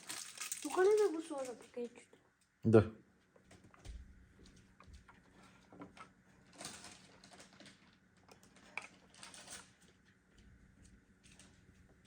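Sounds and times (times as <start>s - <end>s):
packaging rustling: 0.0s - 1.7s.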